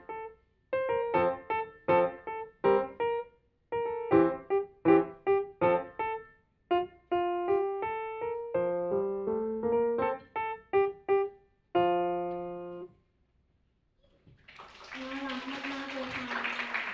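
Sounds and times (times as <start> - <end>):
piano playing: 0.0 - 12.9.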